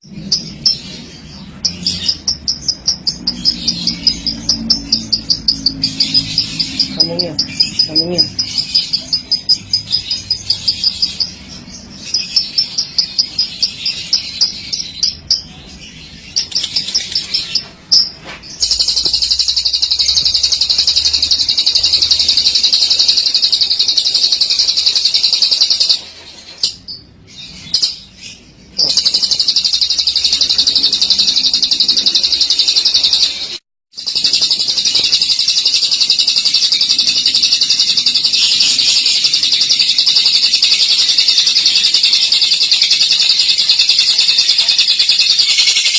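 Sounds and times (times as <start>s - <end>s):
lovebird chattering trill: 0.0s - 45.9s
rapid bird chirps: 0.0s - 45.9s.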